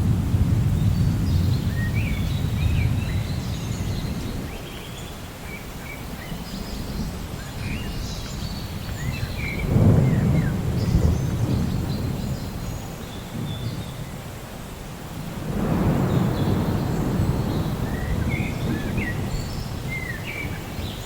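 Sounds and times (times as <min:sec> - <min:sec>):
distant thunder rumbling: 0:00.0 - 0:04.6, 0:06.9 - 0:14.5, 0:15.1 - 0:21.0.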